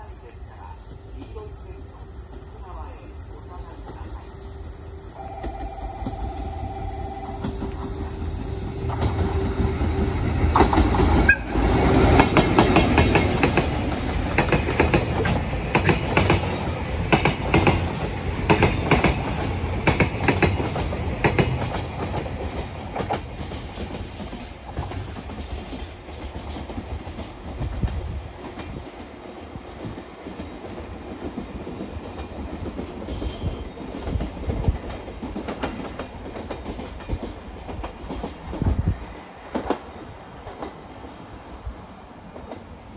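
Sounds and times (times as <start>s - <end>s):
locomotive rumbling past: 0.0s - 25.7s.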